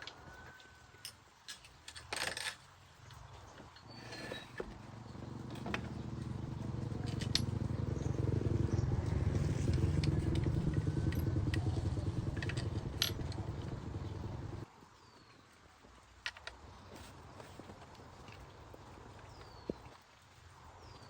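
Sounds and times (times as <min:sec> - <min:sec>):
small engine running: 0:04.0 - 0:14.7.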